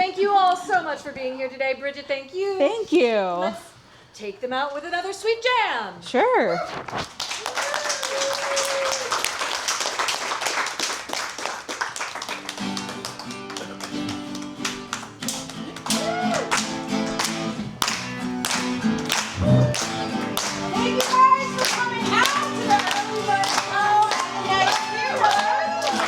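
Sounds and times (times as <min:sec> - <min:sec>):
audience applauding: 0:07.1 - 0:26.0
crowd cheering: 0:07.4 - 0:10.6, 0:15.8 - 0:16.8, 0:19.1 - 0:20.9, 0:23.8 - 0:26.0
instrumental jam: 0:19.0 - 0:21.3.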